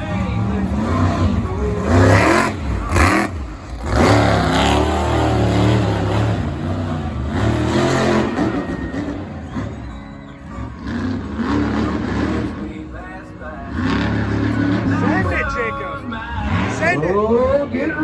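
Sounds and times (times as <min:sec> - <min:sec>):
truck engine revving hard: 0:00.0 - 0:18.0.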